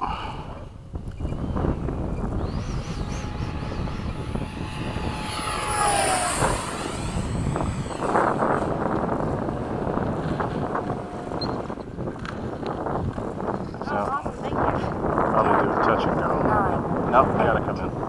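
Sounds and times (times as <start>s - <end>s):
model jet fan whine passing: 0.7s - 18.0s.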